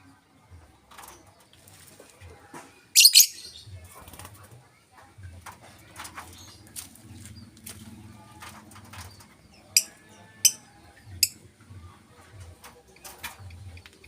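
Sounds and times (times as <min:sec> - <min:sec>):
bird giving shrill calls: 0:03.0 - 0:03.5.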